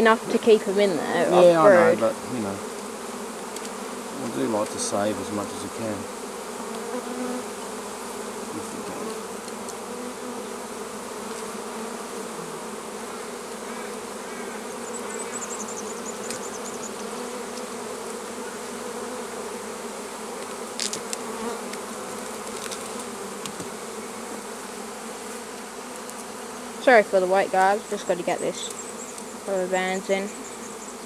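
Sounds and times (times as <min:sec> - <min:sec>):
honeybees buzzing: 0:00.0 - 0:31.0.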